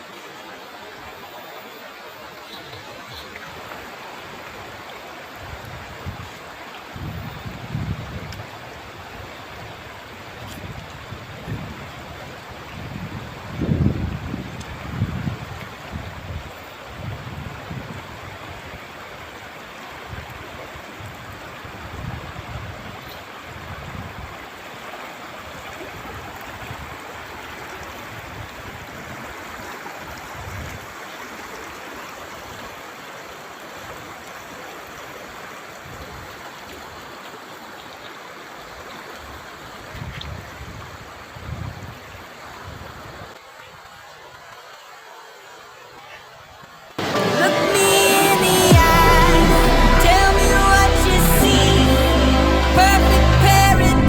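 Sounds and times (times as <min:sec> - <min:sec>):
river water rushing over stones: 0:00.0 - 0:45.9, 0:47.0 - 0:54.0
low rumbles: 0:48.7 - 0:54.0.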